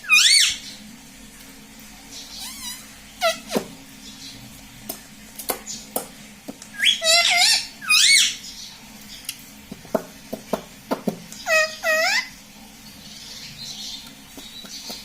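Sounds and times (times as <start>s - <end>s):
parakeet warbling calls: 0.0s - 0.8s, 2.1s - 4.4s, 6.7s - 8.7s, 11.4s - 12.4s.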